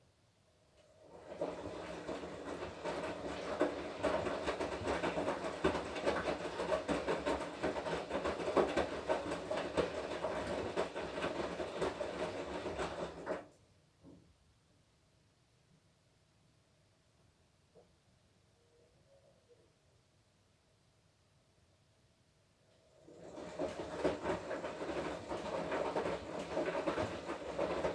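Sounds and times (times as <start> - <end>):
washing machine drum turning: 23.1 - 27.9.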